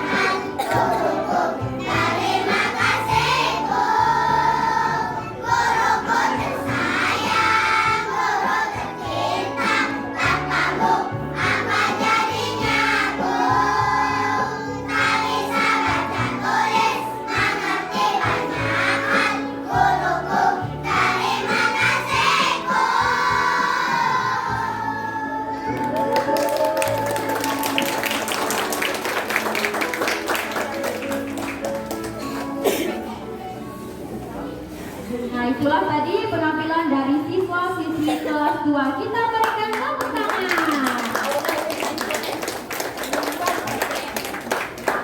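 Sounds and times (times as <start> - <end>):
children's choir singing: 0.0 - 25.9
instrumental accompaniment: 0.0 - 35.2.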